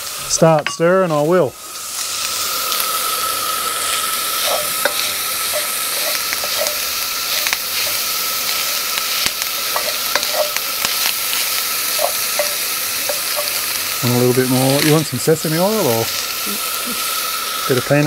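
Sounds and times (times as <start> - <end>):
bacon sizzling in a wok: 0.0 - 18.0
metal spatula scraping wok: 3.9 - 16.2.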